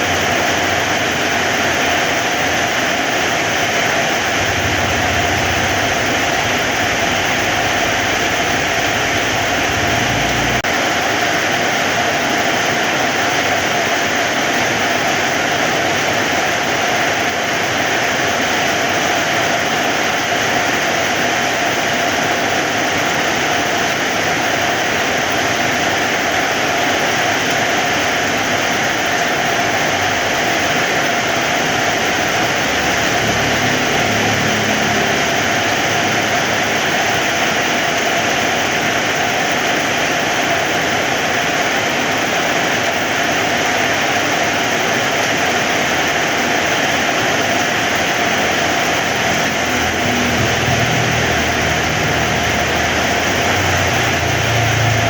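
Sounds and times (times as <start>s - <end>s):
heavy rain hissing: 0.0s - 55.0s
low rumble: 4.2s - 10.7s.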